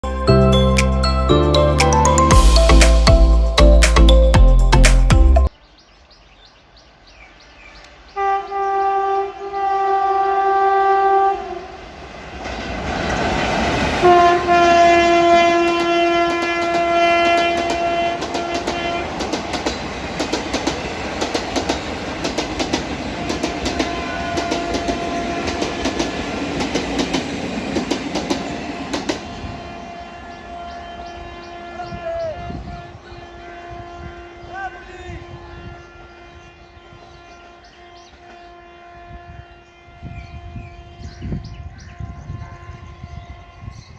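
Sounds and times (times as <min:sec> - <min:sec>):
train horn blasts: 0:08.2 - 0:12.0, 0:13.9 - 0:19.5, 0:22.4 - 0:26.9, 0:28.5 - 0:43.9
train wheels clattering over rails: 0:11.9 - 0:29.7.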